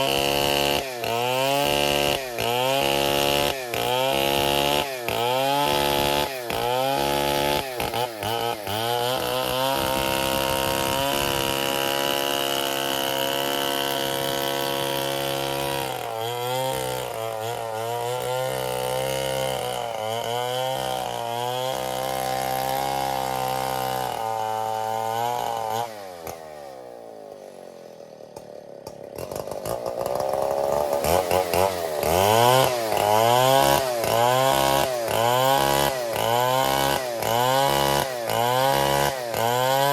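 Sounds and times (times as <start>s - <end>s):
chainsaw sawing wood: 0.0s - 39.9s.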